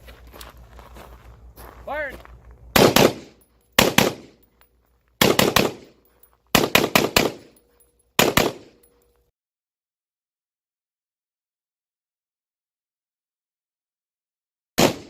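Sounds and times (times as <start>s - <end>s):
rifle firing rapid shots: 2.8s - 4.4s, 5.2s - 7.6s, 8.2s - 8.8s, 14.8s - 15.0s.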